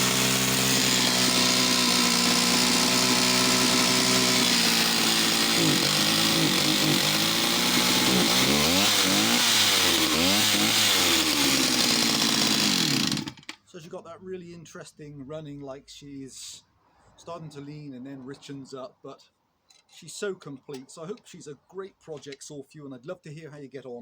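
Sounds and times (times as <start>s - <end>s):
chainsaw engine running: 0.0s - 13.6s.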